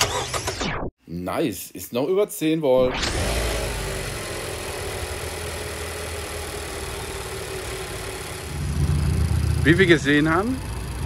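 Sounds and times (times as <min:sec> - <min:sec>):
car engine idling: 0:03.1 - 0:11.0.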